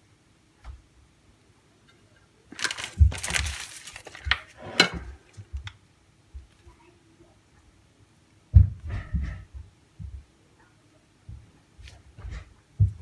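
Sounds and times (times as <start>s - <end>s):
quiet handling noises: 1.8s - 5.7s
rustling: 2.5s - 5.2s
kitchen knocks and clinks: 2.6s - 5.1s.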